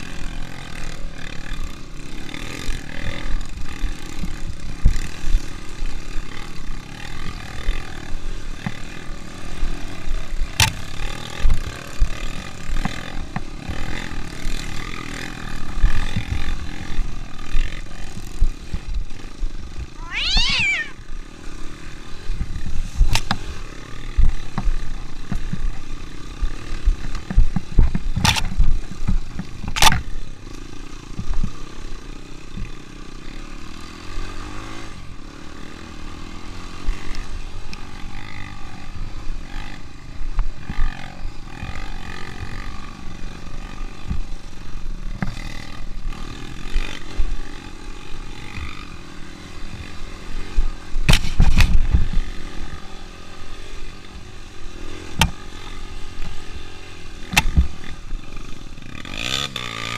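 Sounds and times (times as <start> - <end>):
motorcycle engine under load: 21.6 - 59.9.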